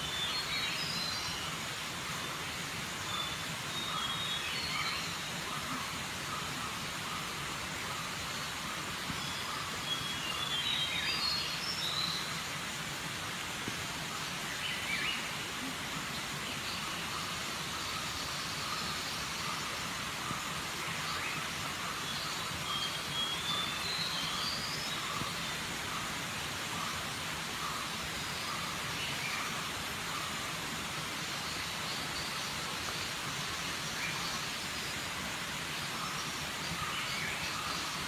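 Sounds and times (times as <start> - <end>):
outdoor background hiss: 0.0 - 38.0.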